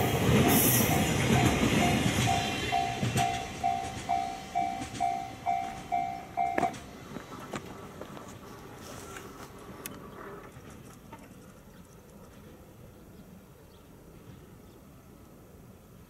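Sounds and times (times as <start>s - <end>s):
train wheel clicks: 0.0s - 8.3s
low train rumble: 0.0s - 16.0s.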